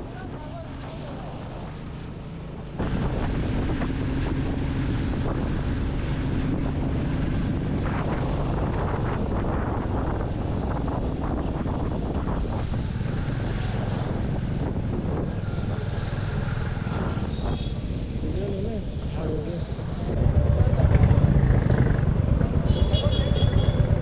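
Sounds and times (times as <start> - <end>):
wind on microphone: 2.8 - 24.0
motorcycle engine running: 20.1 - 24.0.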